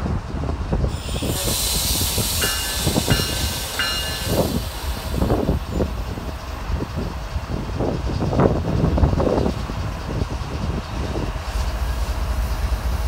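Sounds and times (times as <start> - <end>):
steel wheels rumbling on rails: 0.0 - 13.0
train clanks: 0.0 - 13.0
high hiss: 0.9 - 6.6.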